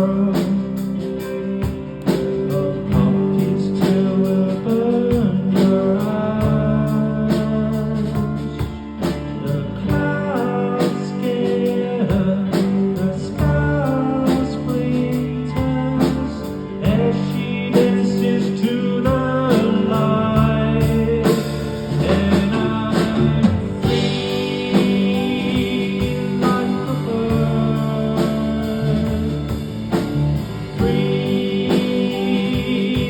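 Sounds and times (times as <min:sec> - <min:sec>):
live band playing blues rock: 0:00.0 - 0:33.0.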